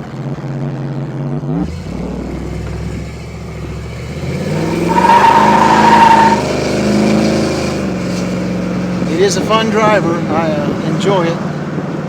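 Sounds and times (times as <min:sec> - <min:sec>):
pickup truck engine accelerating: 0:00.0 - 0:12.0.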